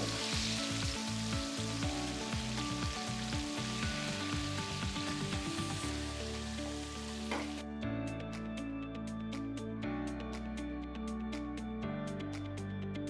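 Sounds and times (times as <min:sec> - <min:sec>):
chicken deep-frying in oil: 0:00.0 - 0:07.6
background music: 0:00.0 - 0:13.0.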